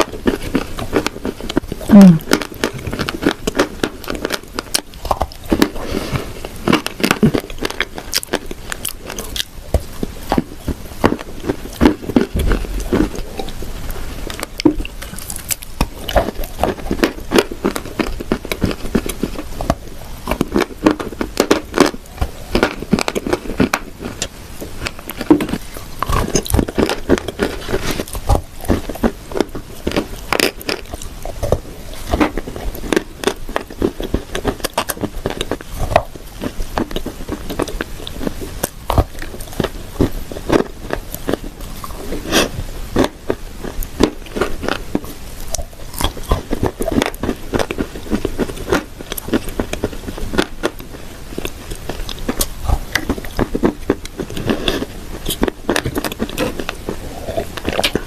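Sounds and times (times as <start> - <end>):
crunchy chewing: 0.0 - 58.0.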